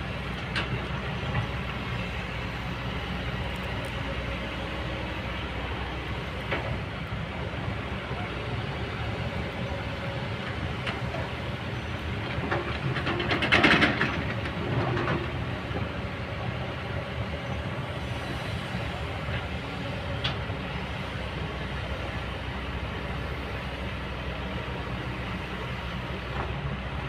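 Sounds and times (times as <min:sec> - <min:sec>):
excavator diesel engine running: 0:00.0 - 0:27.0
clanking and rattling: 0:12.2 - 0:15.4.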